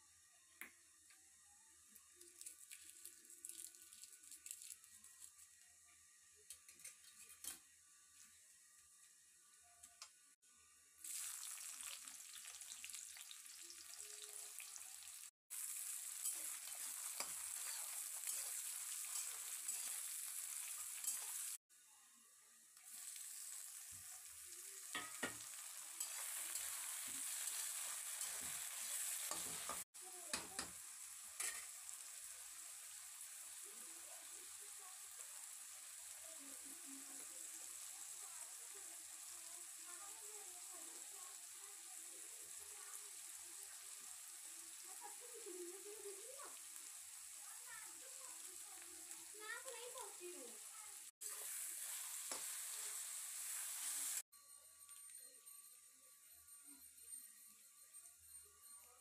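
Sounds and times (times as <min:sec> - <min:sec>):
hot oil sizzling: 0:01.8 - 0:21.7, 0:22.4 - 0:54.3
metal spatula scraping: 0:06.6 - 0:07.6, 0:15.8 - 0:21.6, 0:24.9 - 0:30.7, 0:31.4 - 0:31.8, 0:51.2 - 0:54.2.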